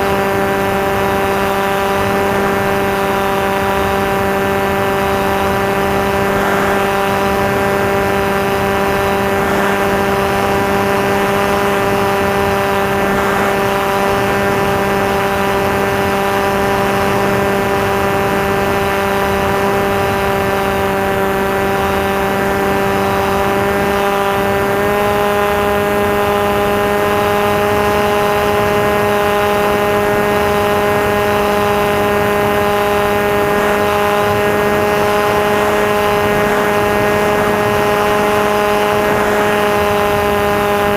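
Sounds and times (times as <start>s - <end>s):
electric model plane motor buzzing: 0.0s - 40.9s.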